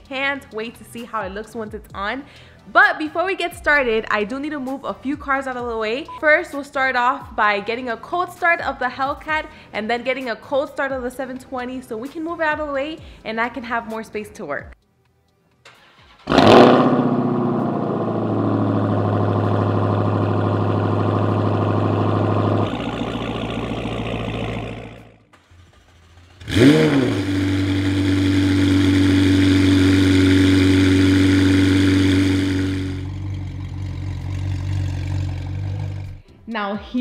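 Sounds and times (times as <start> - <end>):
second car engine cold start: 15.6 - 36.3
car engine cold start and idle: 15.6 - 36.4.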